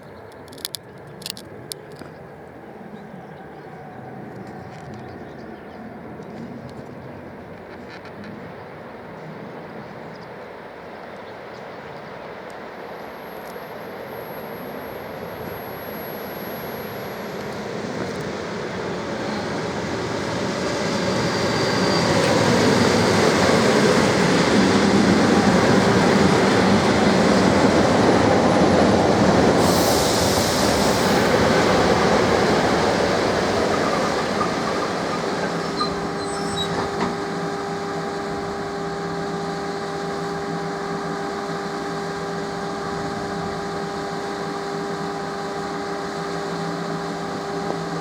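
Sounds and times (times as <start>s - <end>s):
electric train rolling on track: 0.0s - 48.0s
short hiss: 29.6s - 31.8s.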